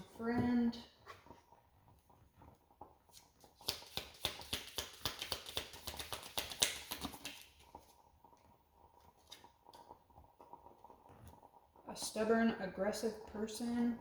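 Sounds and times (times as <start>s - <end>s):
cards being shuffled: 3.1s - 7.5s.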